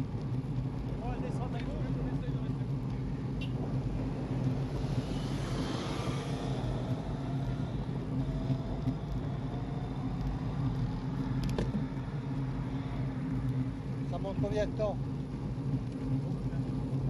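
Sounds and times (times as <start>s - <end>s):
bicycle tyre noise: 0.0s - 17.0s
low hum: 0.0s - 17.0s.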